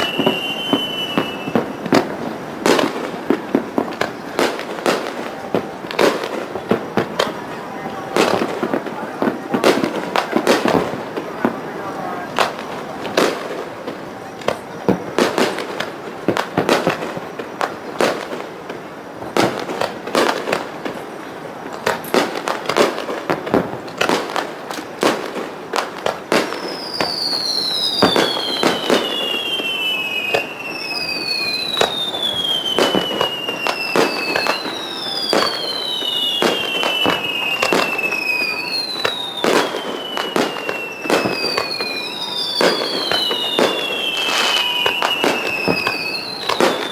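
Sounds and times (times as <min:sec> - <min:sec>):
high falling whistles: 0:00.0 - 0:01.9, 0:26.4 - 0:46.9
fireworks bursting with bangs: 0:00.0 - 0:46.9.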